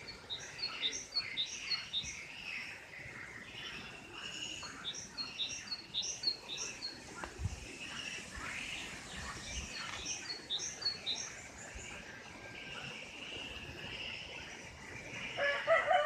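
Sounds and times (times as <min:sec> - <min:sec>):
small birds chirping: 0:00.0 - 0:15.8
rooster crowing: 0:15.4 - 0:16.0.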